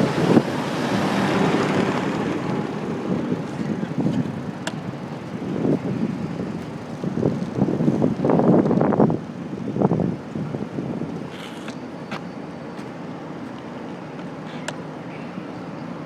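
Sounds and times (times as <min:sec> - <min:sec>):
wind buffeting microphone: 0:00.0 - 0:11.5
road rattle: 0:00.0 - 0:15.4
city traffic noise: 0:00.0 - 0:16.0.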